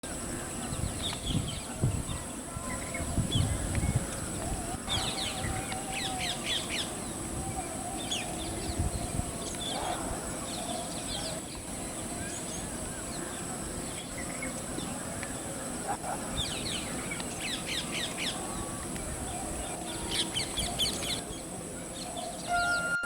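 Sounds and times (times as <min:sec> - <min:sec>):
steady high hiss: 0:00.0 - 0:23.0
birds chirping: 0:00.1 - 0:23.0.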